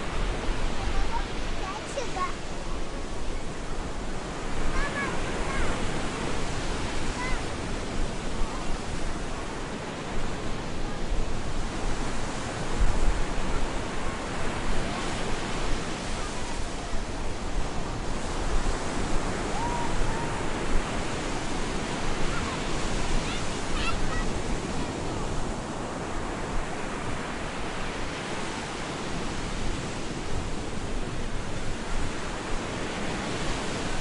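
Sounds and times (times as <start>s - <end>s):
waves breaking on a beach: 0.0s - 34.0s
faint high cries: 19.4s - 20.6s.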